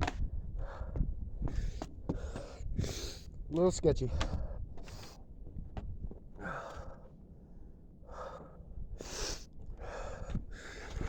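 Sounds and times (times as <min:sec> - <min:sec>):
person breathing hard: 0:08.0 - 0:11.0.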